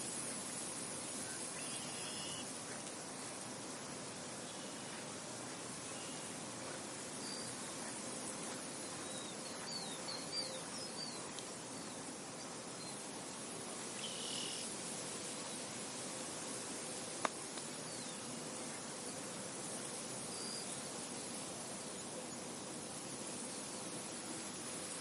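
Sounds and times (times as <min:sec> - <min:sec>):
bird chirps: 0:08.9 - 0:11.3.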